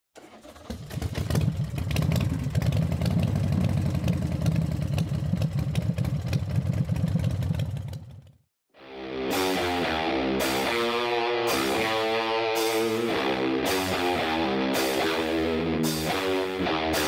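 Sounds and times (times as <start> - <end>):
motorcycle engine running: 0.5 - 8.5.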